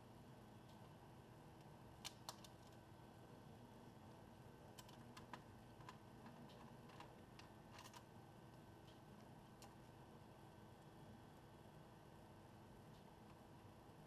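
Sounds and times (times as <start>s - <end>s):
small clicks and taps: 1.6s - 2.8s, 4.8s - 9.8s.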